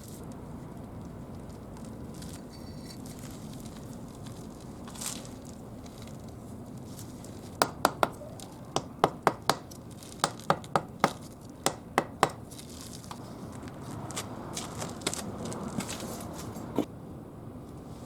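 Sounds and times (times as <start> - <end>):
tool tapping brick: 7.6 - 12.5.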